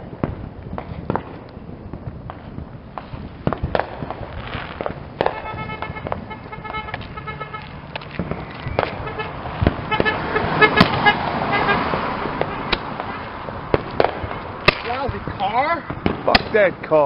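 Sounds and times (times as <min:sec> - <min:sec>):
firework pops and bangs: 0:00.0 - 0:17.0
car alarm pulsing tones: 0:05.2 - 0:13.3.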